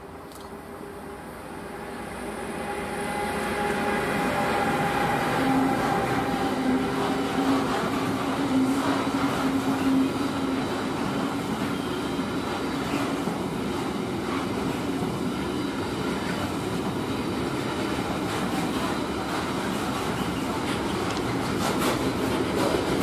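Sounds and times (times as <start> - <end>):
freight train wheels on rails: 0.1 - 23.0.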